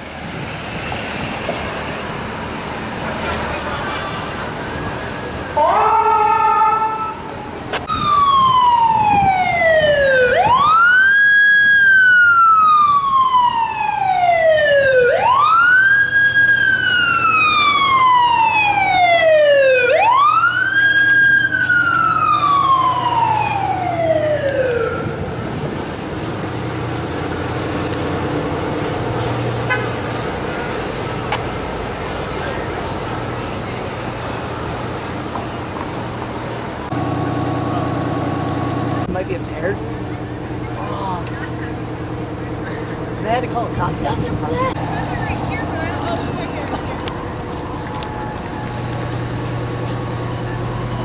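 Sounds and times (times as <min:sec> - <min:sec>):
engine and traffic hum: 0:00.0 - 0:51.0
fire siren wailing: 0:04.4 - 0:31.1, 0:44.3 - 0:51.0.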